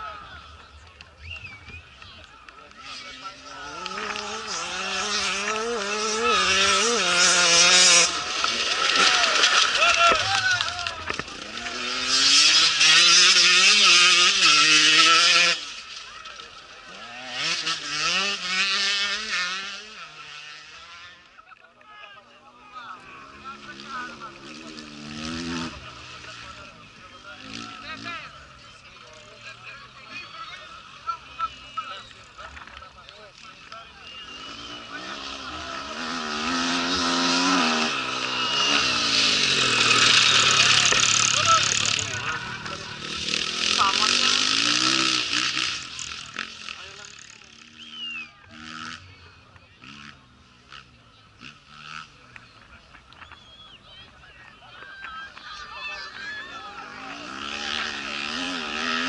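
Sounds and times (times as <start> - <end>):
motorcycle engines revving past: 0.0 - 21.4, 22.2 - 59.0.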